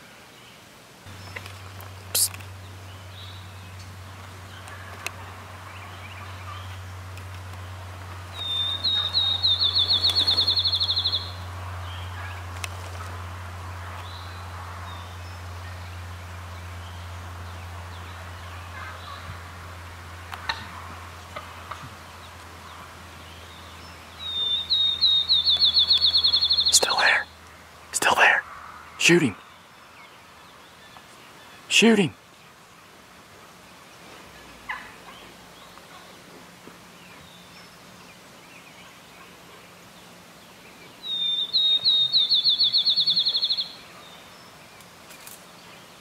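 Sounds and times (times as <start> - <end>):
songbird rapid high trill: 8.3 - 12.1, 24.1 - 27.4, 41.0 - 43.8
faint turkey calls: 8.3 - 13.1, 24.2 - 29.4, 34.3 - 36.3.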